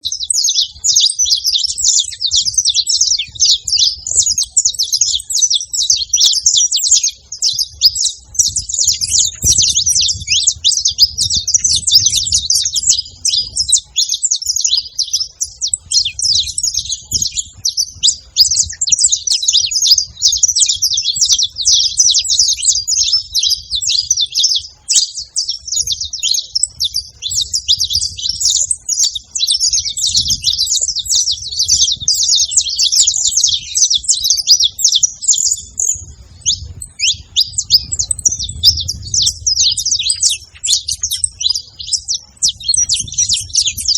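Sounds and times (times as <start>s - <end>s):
finch singing high chirps and trills: 0.0s - 43.9s
faint low rumble: 35.2s - 43.9s.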